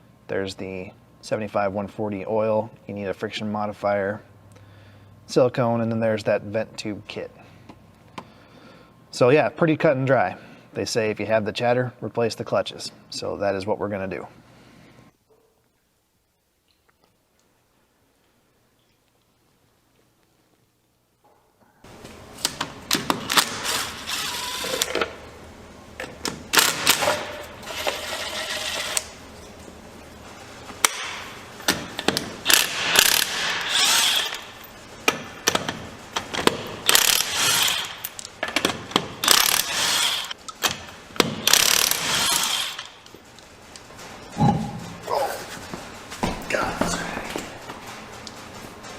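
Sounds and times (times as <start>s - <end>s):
ratchet wrench clicking: 32.5s - 34.5s, 36.8s - 38.3s, 39.2s - 40.4s, 41.5s - 42.9s
metal knocks and clatter: 43.9s - 46.5s.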